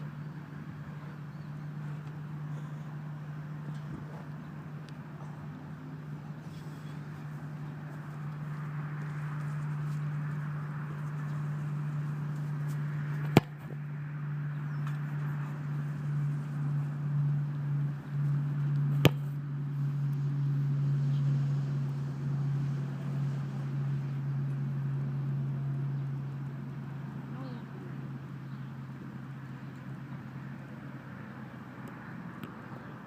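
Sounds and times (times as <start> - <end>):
soccer ball kicked thump: 13.2 - 13.8, 18.9 - 19.4.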